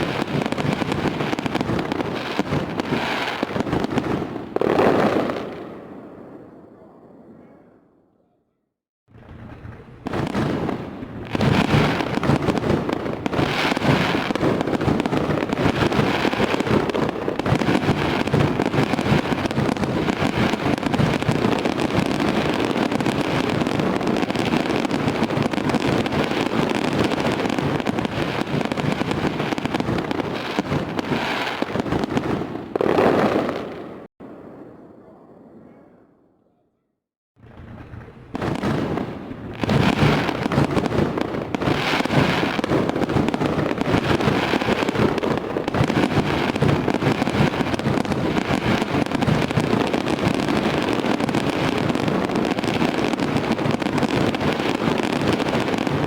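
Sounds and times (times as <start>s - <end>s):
fireworks crackling and banging: 0.0s - 6.3s, 9.1s - 34.6s, 37.4s - 56.0s.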